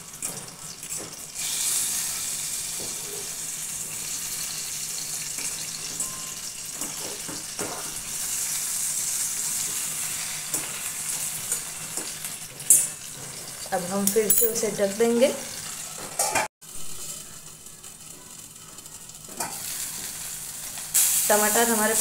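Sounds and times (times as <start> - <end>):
vegetables sizzling in hot oil: 0.0 - 22.0.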